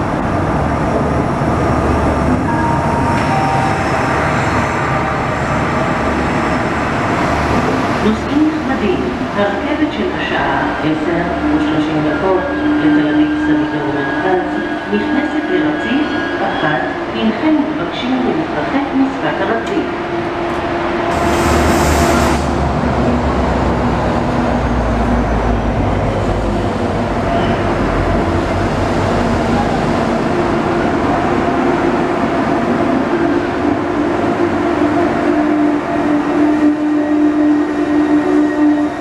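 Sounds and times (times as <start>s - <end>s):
train rumbling and humming: 0.0s - 39.0s
air hiss of train doors: 21.1s - 22.6s.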